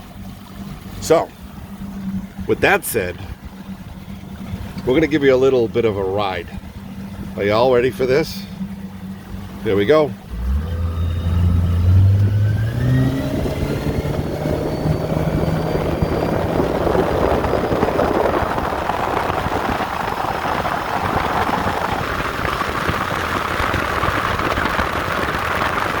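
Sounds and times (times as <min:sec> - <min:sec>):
boat motor running: 0:00.0 - 0:26.0
wind rushing on microphone: 0:11.0 - 0:26.0.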